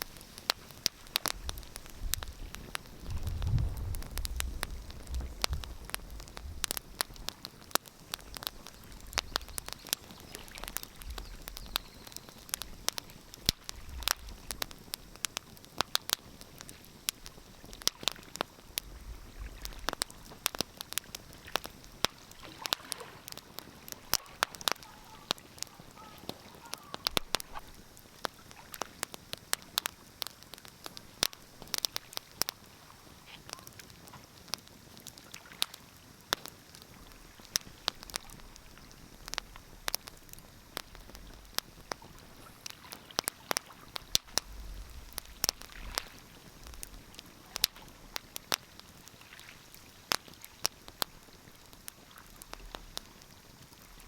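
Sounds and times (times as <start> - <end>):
wood fire crackling: 0.0 - 54.0
low rumbles: 1.4 - 6.8, 44.3 - 46.0.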